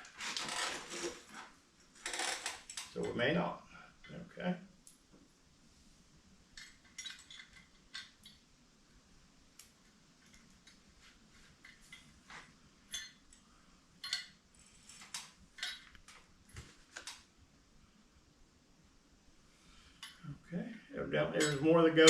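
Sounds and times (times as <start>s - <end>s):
metal bolts clinking: 6.6s - 8.4s, 12.9s - 13.3s, 14.0s - 14.4s, 15.1s - 16.0s, 21.4s - 21.7s.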